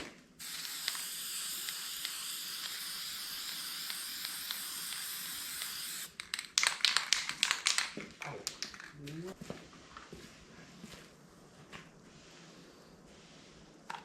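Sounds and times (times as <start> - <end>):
spray paint can hissing: 0.4 - 6.3.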